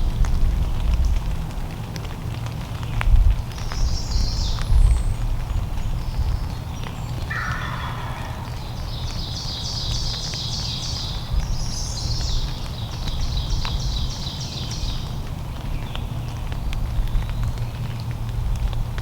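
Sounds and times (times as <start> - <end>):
steady low rumble: 3.1 - 10.5
songbird trilling: 7.2 - 12.4.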